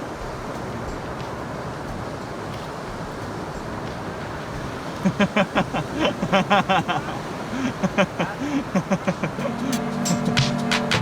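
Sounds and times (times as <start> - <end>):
surf on beach: 0.0 - 11.0
wind: 0.0 - 11.0
person speaking: 5.0 - 10.0.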